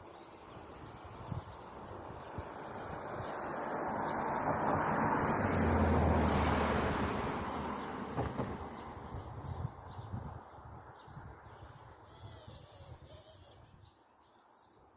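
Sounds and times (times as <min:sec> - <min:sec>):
vehicle passing by: 0:02.0 - 0:09.5.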